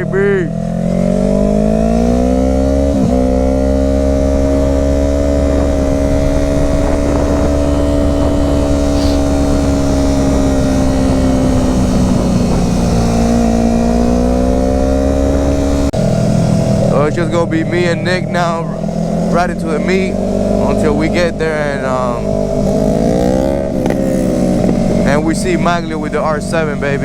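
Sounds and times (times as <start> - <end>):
motorcycle engine cruising: 0.0 - 27.0
wind rumble on microphone: 0.6 - 27.0.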